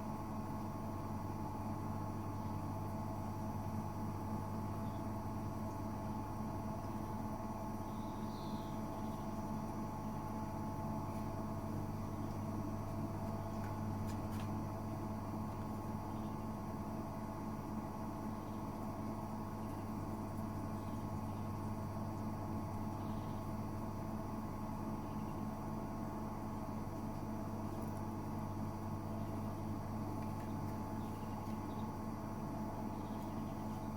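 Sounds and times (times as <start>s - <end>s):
washing machine motor hum: 0.0s - 33.9s.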